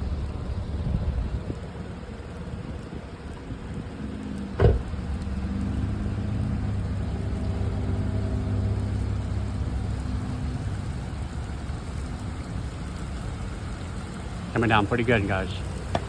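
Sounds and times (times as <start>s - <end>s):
thunder crack and rumble: 0.0s - 11.4s
steady rain: 0.0s - 16.0s.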